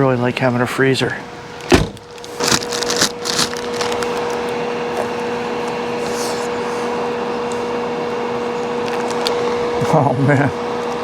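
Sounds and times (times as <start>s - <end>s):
air conditioner fan whirring: 0.0s - 11.0s
low electric hum: 0.0s - 11.0s
objects clattering and rustling: 1.7s - 4.4s.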